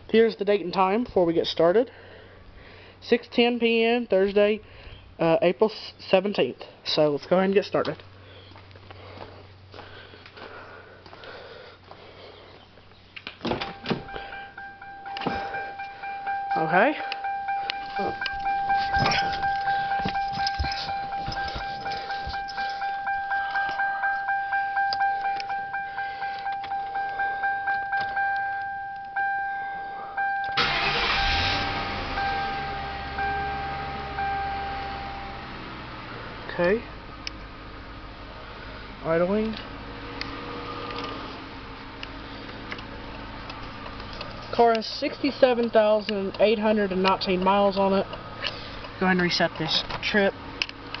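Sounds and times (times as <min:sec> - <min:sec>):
handling noises: 0:07.8 - 0:29.2, 0:39.5 - 0:51.0
car warning chime: 0:13.5 - 0:50.9.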